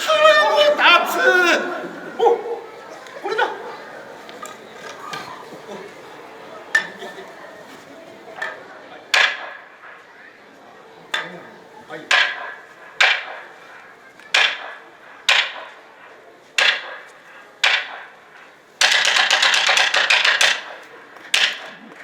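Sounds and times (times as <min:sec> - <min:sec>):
wooden clappers clacking: 0:00.0 - 0:07.5, 0:08.3 - 0:10.0, 0:12.1 - 0:22.0.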